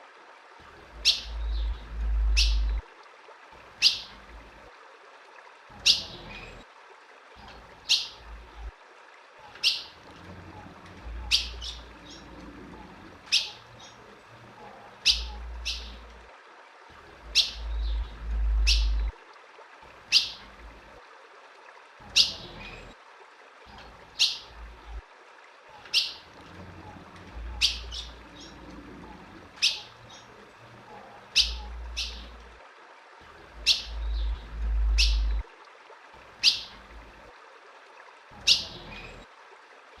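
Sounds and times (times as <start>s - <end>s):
bird chip calls: 1.0s - 2.8s, 9.5s - 10.0s, 11.1s - 12.3s, 13.3s - 14.0s, 15.0s - 16.1s, 17.3s - 19.1s, 20.1s - 20.4s, 25.8s - 26.2s, 27.4s - 28.8s, 29.6s - 30.3s, 31.3s - 32.4s, 33.6s - 35.4s, 36.4s - 36.8s, 38.4s - 39.2s
low rumble: 17.6s - 19.1s, 33.9s - 35.4s.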